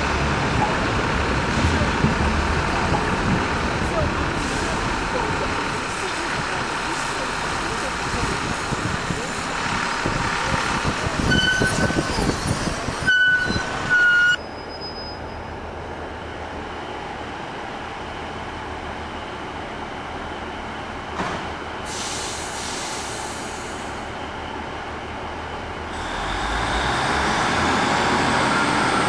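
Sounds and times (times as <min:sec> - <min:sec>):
street traffic: 0:00.0 - 0:29.0
train rumble from on board: 0:00.0 - 0:29.0
high-pitched squeals: 0:11.2 - 0:15.6
hiss of air: 0:21.8 - 0:24.0.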